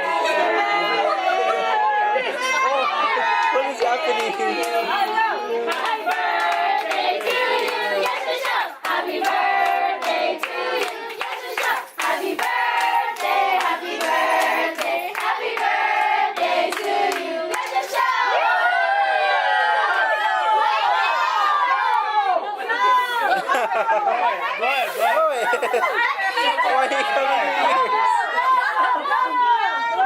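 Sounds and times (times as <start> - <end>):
group singing: 0.0 - 19.3
hand claps: 5.7 - 15.7.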